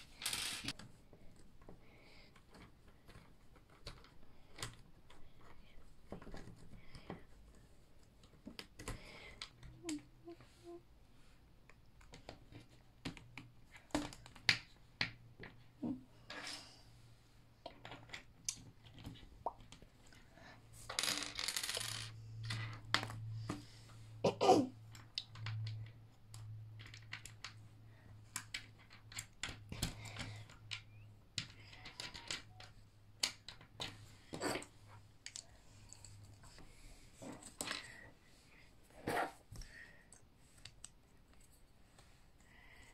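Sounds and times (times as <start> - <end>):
small metal parts clicking and clattering: 0.0 - 0.9, 20.8 - 23.2, 24.9 - 34.6.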